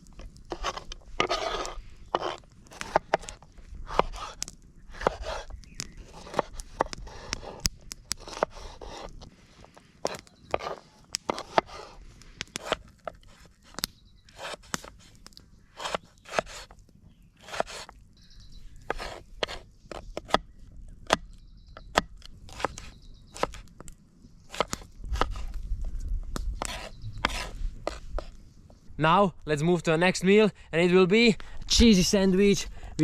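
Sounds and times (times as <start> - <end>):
sharp knocks and clicks with scrape: 0.2 - 11.8.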